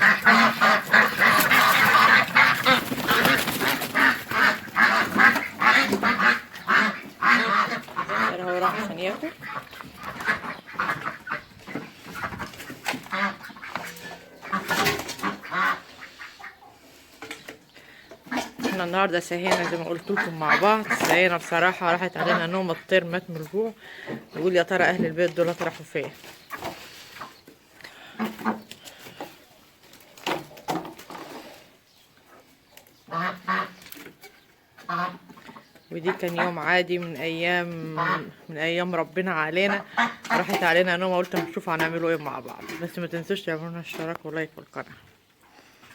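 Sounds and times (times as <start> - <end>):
domestic waterfowl honking: 0.0 - 17.0, 18.2 - 25.0, 33.0 - 33.9, 34.8 - 41.9
poultry calling: 0.0 - 29.9, 31.0 - 44.1.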